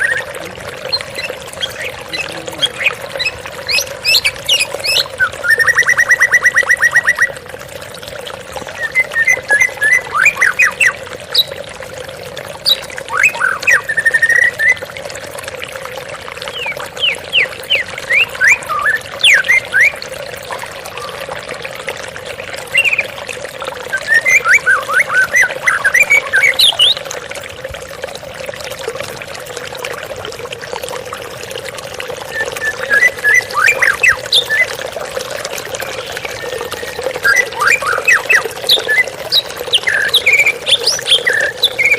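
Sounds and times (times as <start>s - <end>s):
bird singing whistled phrases: 0.0s - 7.4s, 8.8s - 11.5s, 12.7s - 14.8s, 16.5s - 20.0s, 22.8s - 23.2s, 23.8s - 27.1s, 32.3s - 34.8s, 35.8s - 41.9s
waterfall running water: 0.0s - 41.9s.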